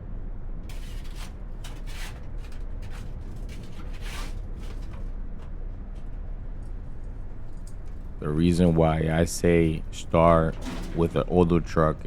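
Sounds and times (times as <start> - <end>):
hand shovel scraping: 0.7 - 5.2, 9.6 - 11.6
steady low rumble: 4.5 - 12.0.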